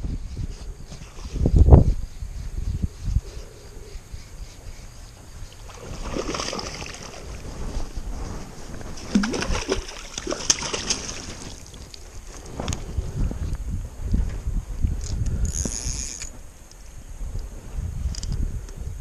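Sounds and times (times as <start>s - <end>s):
fish splashing in water: 5.6s - 7.4s, 8.9s - 11.8s.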